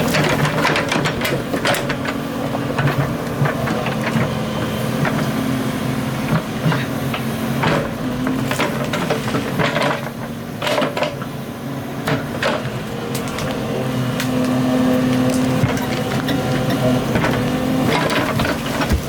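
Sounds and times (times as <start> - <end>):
excavator diesel engine running: 0.0 - 19.0
knocks and clanks: 15.6 - 19.0.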